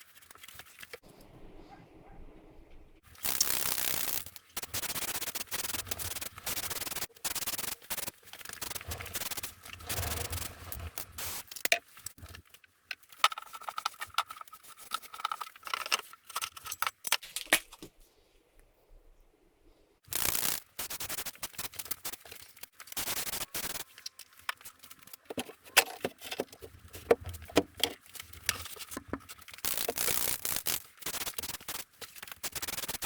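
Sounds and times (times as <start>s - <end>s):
scraping and rubbing: 3.9s - 17.0s.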